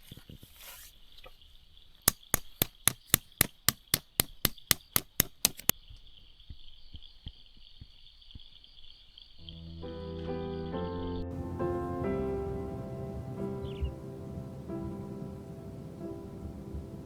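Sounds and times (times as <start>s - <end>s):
sharp knocks: 2.1s - 5.7s.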